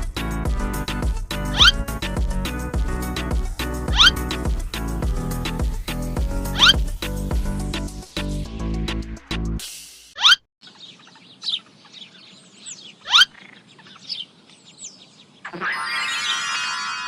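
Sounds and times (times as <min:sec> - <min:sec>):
birds chirping: 0:01.3 - 0:02.0, 0:03.5 - 0:07.1, 0:10.2 - 0:17.0.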